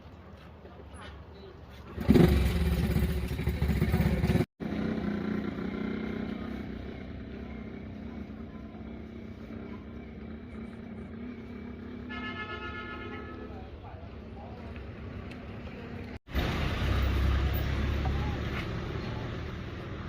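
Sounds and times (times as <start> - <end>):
small engine running: 2.0 - 12.0.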